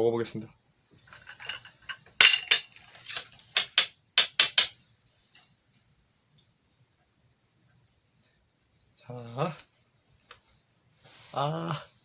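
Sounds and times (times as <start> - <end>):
utensils tapping a plate: 1.1 - 5.5.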